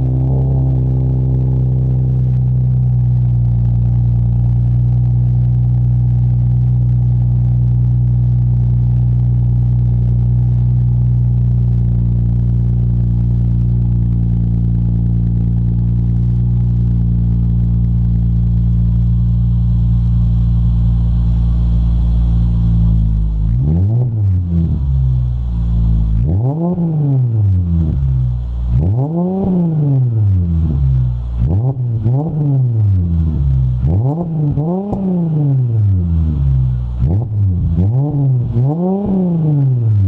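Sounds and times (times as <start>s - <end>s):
car exhaust rumble idling: 0.0s - 40.0s.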